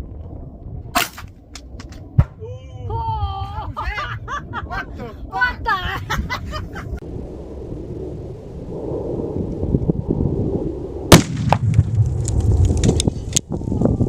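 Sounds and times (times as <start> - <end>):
deep low rumble: 0.0 - 14.0
loud rifle shot: 11.1 - 11.9.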